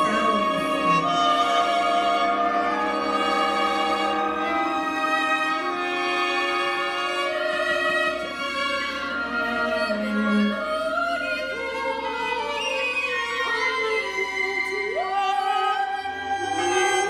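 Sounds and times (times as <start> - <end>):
chamber ensemble playing chords: 0.0 - 12.2
violin: 0.0 - 17.0.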